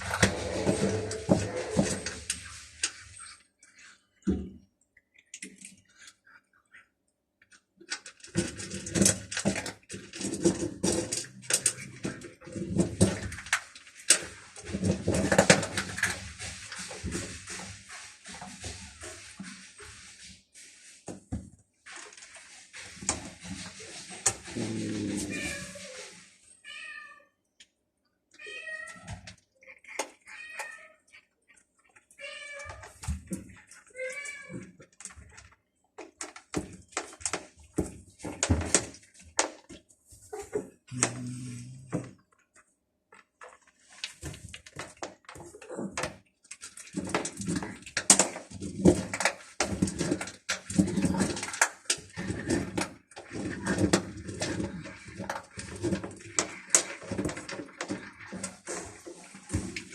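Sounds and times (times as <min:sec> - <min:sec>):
cats eating crunchily: 0:00.0 - 0:26.9, 0:28.3 - 0:59.9
cats meowing: 0:24.5 - 0:27.4, 0:28.3 - 0:34.8.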